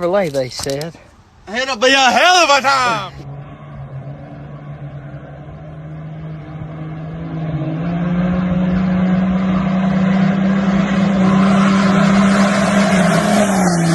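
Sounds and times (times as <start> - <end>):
vehicle engine revving high: 2.8 - 13.9.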